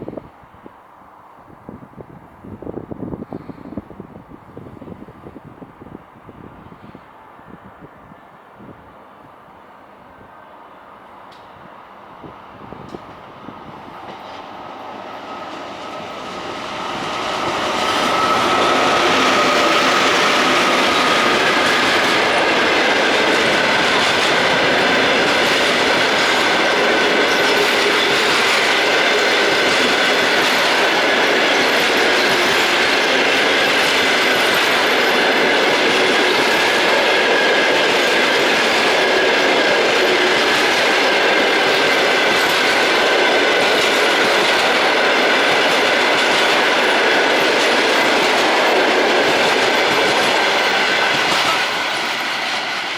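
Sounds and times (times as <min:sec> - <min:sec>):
passenger train passing: 0:00.0 - 0:52.9
wheels ringing on rails: 0:12.8 - 0:52.9.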